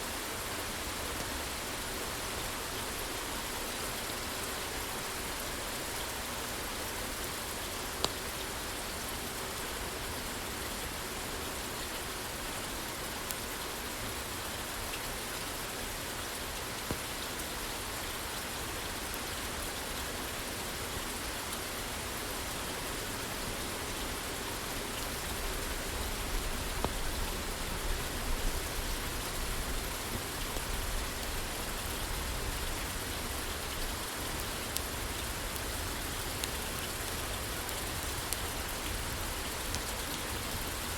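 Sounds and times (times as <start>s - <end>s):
rain on a roof: 0.0s - 40.9s
wood fire crackling: 23.4s - 40.9s.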